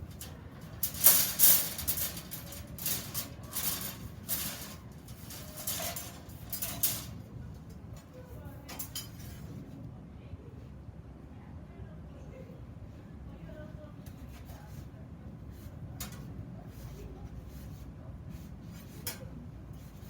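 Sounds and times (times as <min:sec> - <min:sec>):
iron parts scraping and clattering: 0:00.0 - 0:07.3.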